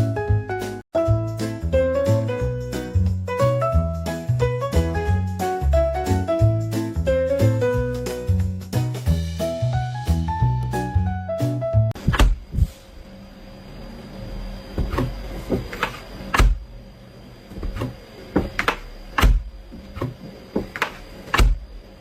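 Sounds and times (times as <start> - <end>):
music: 0.0 - 12.0
sharp knocks and thumps: 12.0 - 12.7, 14.8 - 16.7, 17.5 - 21.7.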